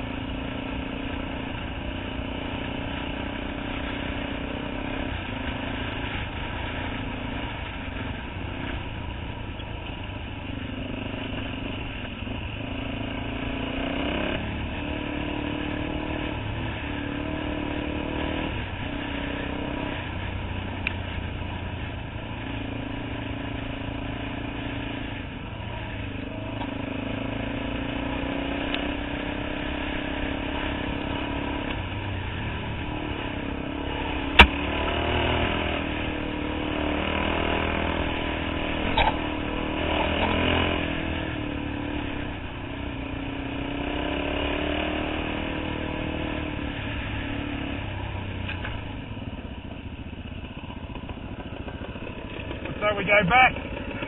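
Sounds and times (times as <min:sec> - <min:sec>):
dirt bike engine revving: 0:22.4 - 0:48.2, 0:50.5 - 0:54.0
sharp knock: 0:34.4 - 0:34.6.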